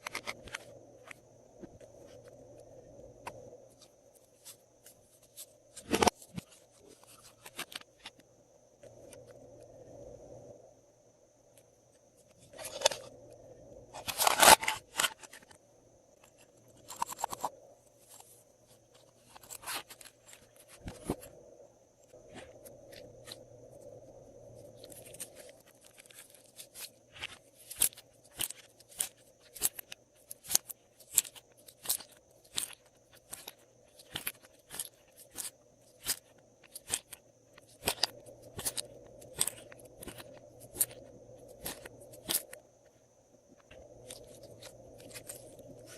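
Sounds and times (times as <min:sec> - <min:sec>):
crunchy slime squishes: 0:16.2 - 0:21.4, 0:22.0 - 0:43.0, 0:43.6 - 0:45.9.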